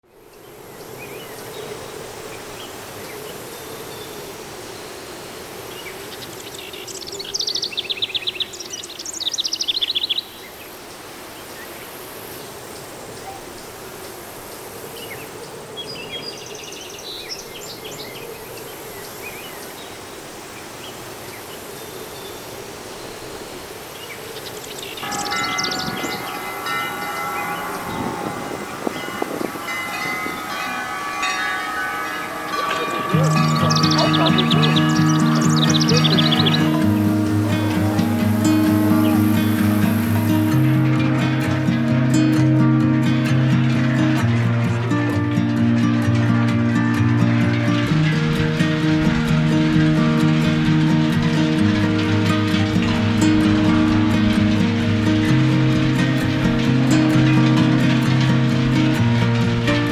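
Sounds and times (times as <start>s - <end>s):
steady background din: 25.0s - 42.0s
steady ringing tones: 25.0s - 46.0s
cowbells clanging: 25.0s - 46.2s.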